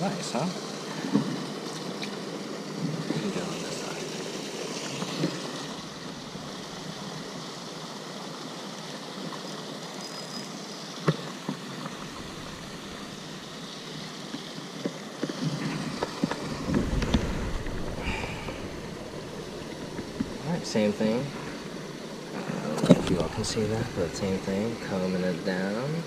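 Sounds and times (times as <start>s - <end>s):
outdoor rushing noise: 15.6s - 22.4s.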